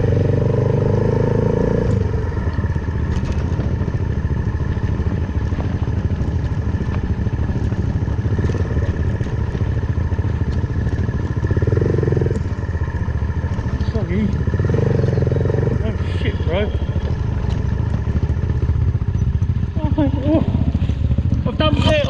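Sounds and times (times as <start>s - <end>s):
motorcycle engine running: 0.0s - 22.0s
small clatters: 1.9s - 16.3s.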